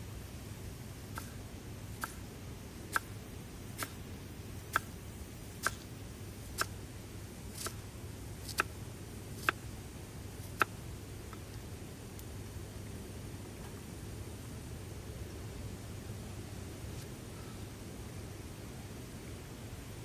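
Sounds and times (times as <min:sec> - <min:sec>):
steady low hum: 0:00.0 - 0:20.0
short sharp clicks: 0:01.2 - 0:01.4.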